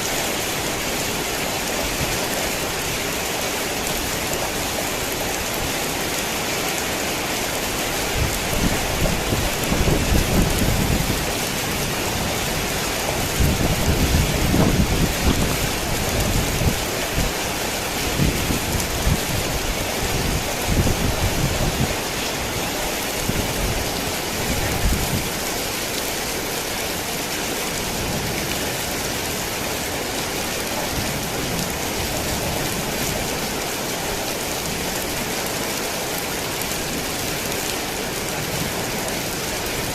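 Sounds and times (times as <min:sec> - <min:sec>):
heavy rain: 0:00.0 - 0:39.9
rolling thunder: 0:08.2 - 0:16.9.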